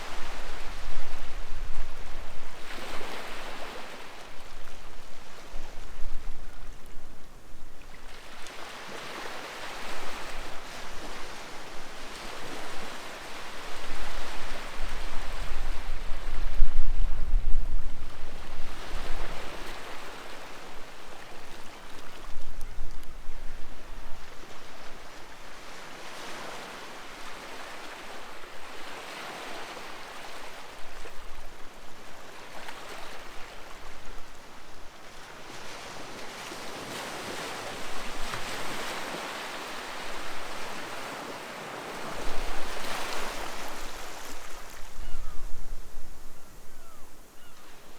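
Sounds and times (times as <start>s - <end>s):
sea waves breaking on shore: 24.5s - 34.0s, 34.9s - 45.1s.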